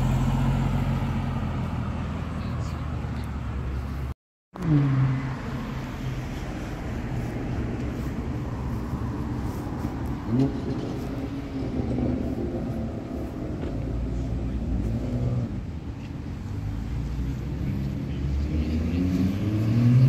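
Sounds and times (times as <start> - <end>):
car engine revving: 16.6 - 20.0.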